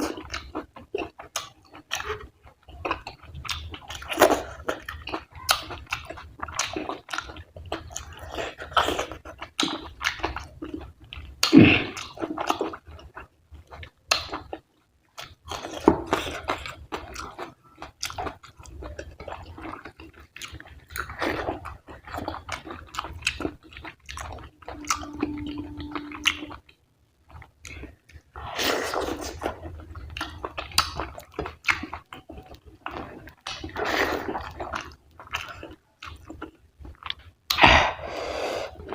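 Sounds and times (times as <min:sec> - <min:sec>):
wet chewing and mouth sounds: 0:00.0 - 0:38.0
low steady tone: 0:24.2 - 0:26.8.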